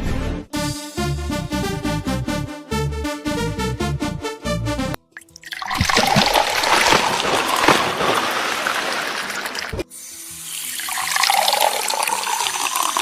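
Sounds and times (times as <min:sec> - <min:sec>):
rushing splashing water: 0:05.4 - 0:09.8.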